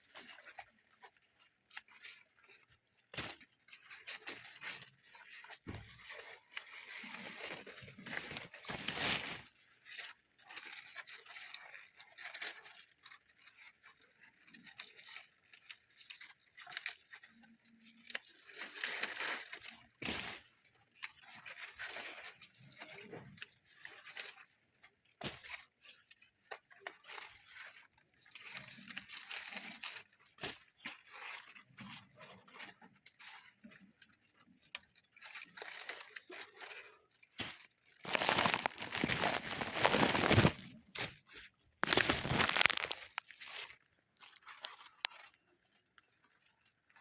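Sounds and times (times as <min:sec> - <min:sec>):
dry material rustling and crunching: 0:03.2 - 0:12.7, 0:18.0 - 0:24.6, 0:35.2 - 0:45.4.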